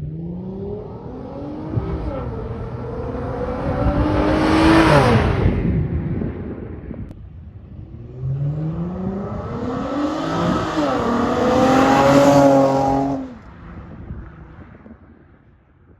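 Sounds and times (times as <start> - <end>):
car engine accelerating hard: 0.0 - 5.6, 7.8 - 14.1.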